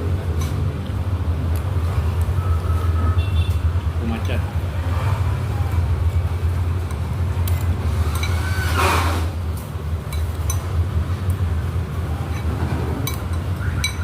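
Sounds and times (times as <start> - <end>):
street traffic rumble: 0.0 - 14.0
vehicle passing: 3.7 - 9.6.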